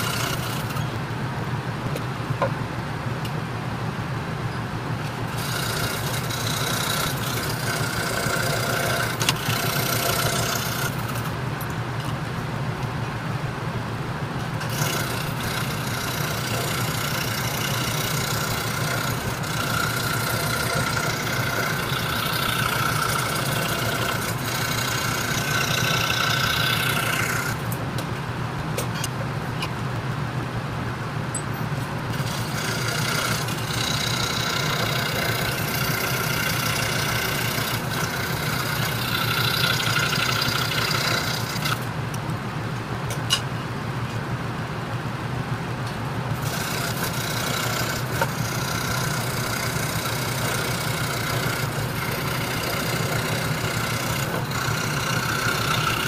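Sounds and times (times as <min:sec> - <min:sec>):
scroll saw cutting wood: 0:00.0 - 0:00.9, 0:05.1 - 0:11.4, 0:14.6 - 0:27.8, 0:32.1 - 0:41.9, 0:46.4 - 0:56.0
motor hum: 0:00.0 - 0:56.0.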